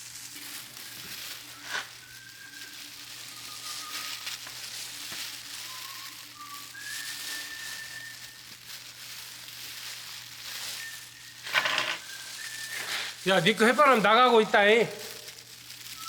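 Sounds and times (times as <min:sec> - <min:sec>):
steady hiss: 0:00.0 - 0:16.0
person whistling a slow tune: 0:00.8 - 0:04.2, 0:05.4 - 0:08.5, 0:10.6 - 0:13.2.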